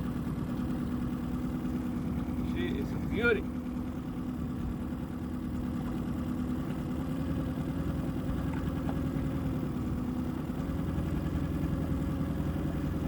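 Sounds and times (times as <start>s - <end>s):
outboard motor running steadily: 0.0s - 13.0s.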